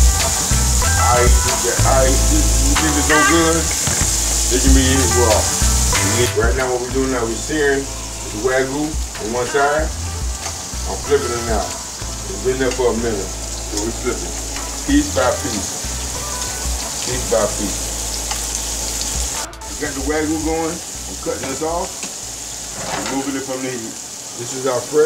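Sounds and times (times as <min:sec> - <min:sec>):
beef sizzling in a pan: 0:00.0 - 0:25.0
voice-like pitched sound: 0:00.8 - 0:10.0, 0:10.8 - 0:15.7.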